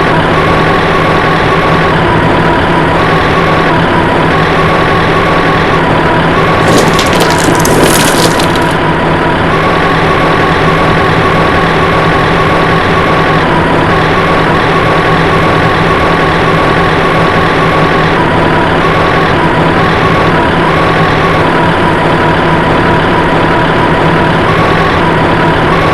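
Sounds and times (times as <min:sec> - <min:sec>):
vehicle engine humming: 0:00.0 - 0:25.9
brief crackle: 0:06.7 - 0:08.8.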